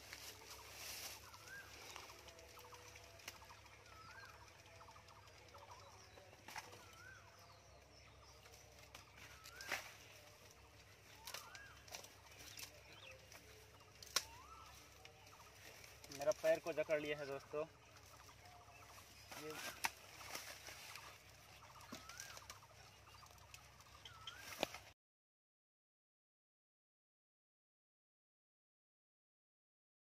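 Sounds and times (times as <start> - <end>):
dry bamboo and leaves crackling: 0.0 - 25.0
bird calling: 0.2 - 8.3, 9.0 - 10.3, 11.1 - 24.9.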